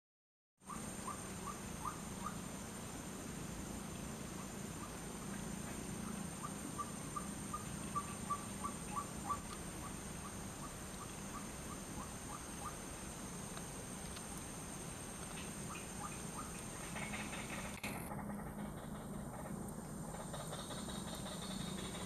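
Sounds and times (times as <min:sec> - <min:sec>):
waterhen calling: 0:06.0 - 0:12.8, 0:15.4 - 0:17.7.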